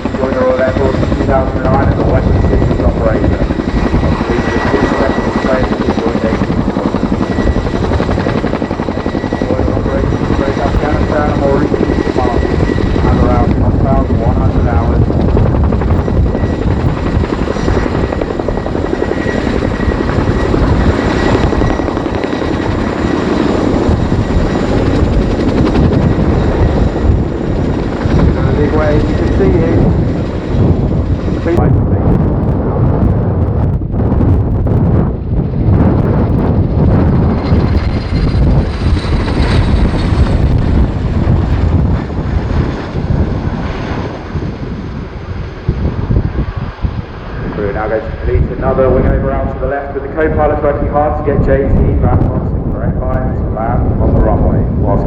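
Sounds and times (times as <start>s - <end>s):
helicopter rotor blade slap: 0.0s - 32.7s, 34.5s - 44.4s
high turbine whine: 0.0s - 55.0s.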